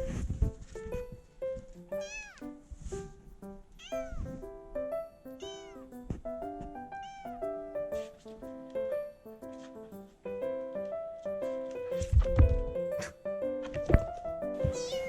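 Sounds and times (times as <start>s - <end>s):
light background music: 0.0s - 15.0s
cat meowing: 2.0s - 2.5s, 3.8s - 4.4s, 5.4s - 5.9s, 6.9s - 7.8s, 14.6s - 15.0s.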